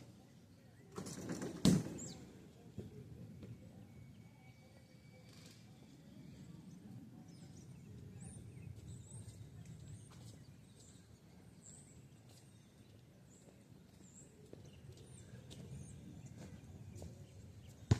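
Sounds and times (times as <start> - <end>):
small birds chirping: 5.5 - 17.9.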